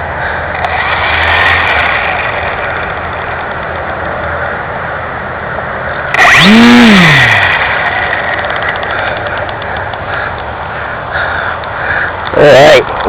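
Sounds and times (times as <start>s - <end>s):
electric motor whine: 0.0s - 4.8s, 6.0s - 10.4s
steady rushing noise: 0.0s - 13.0s.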